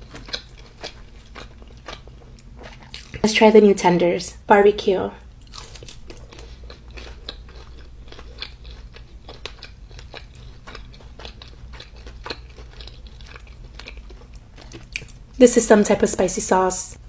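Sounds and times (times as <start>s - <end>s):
crunchy chewing: 0.0s - 3.3s, 5.4s - 15.4s.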